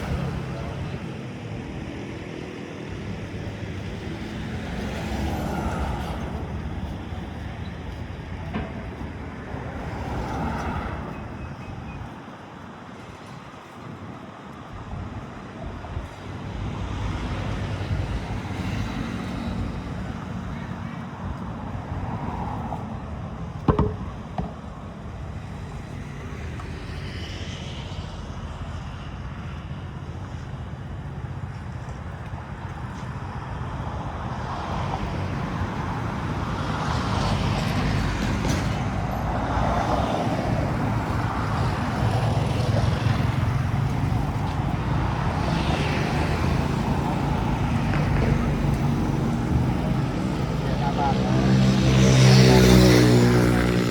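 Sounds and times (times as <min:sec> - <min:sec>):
road traffic rumble: 0:00.0 - 0:53.9
sharp knock: 0:23.7 - 0:24.6.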